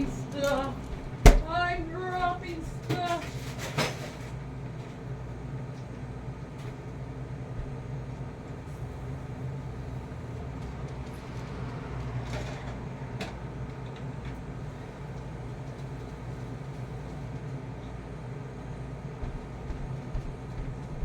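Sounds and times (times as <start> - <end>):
frozen packages knocking: 0.0 - 4.1
refrigerator humming: 0.0 - 21.0.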